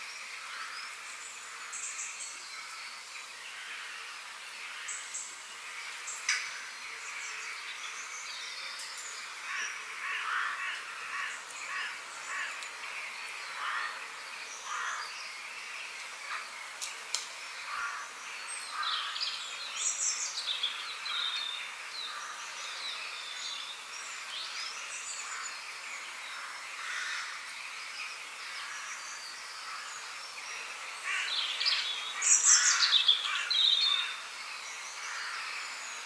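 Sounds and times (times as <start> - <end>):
birds calling and chirping: 0.0 - 36.0
steady outdoor hiss: 0.0 - 36.0.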